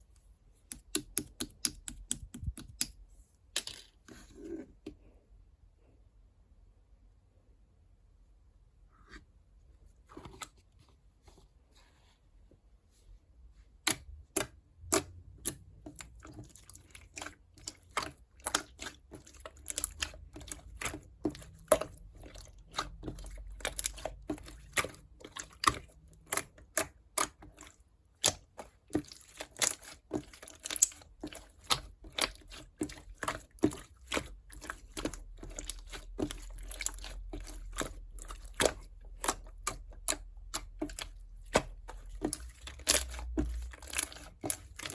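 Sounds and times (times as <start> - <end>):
slime squished with clicky pops: 0.7 - 3.0.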